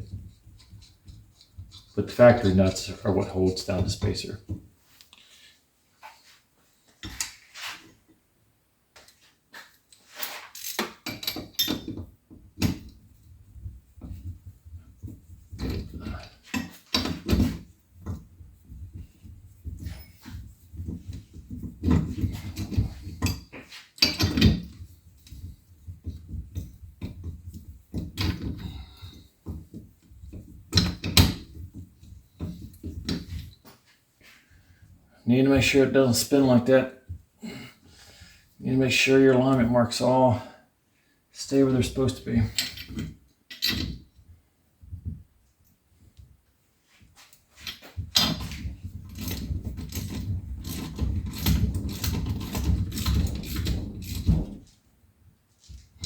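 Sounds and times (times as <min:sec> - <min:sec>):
metal tool clicks and clanks: 0:10.5 - 0:12.0, 0:21.9 - 0:24.7.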